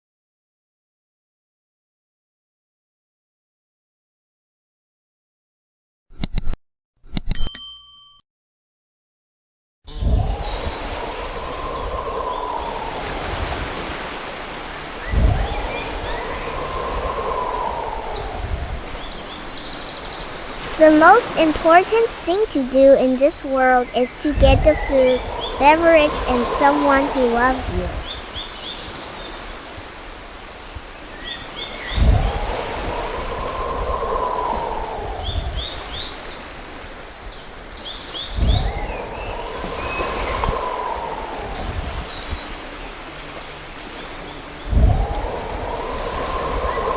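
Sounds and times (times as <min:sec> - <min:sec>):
rush of noise: 0:09.9 - 0:19.6, 0:20.4 - 0:28.2, 0:31.7 - 0:36.2, 0:38.4 - 0:42.4, 0:44.5 - 0:46.9
ocean waves washing on shore: 0:09.9 - 0:46.9
steady rushing hiss: 0:10.2 - 0:28.2, 0:29.6 - 0:35.9, 0:38.7 - 0:46.9.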